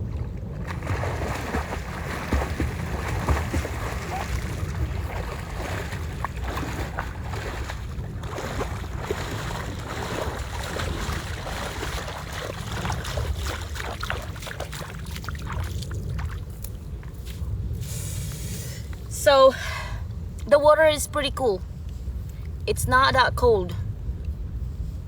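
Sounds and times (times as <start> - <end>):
water splashing from swimming: 0.0 - 16.7
wind rumble on microphone: 0.0 - 25.0.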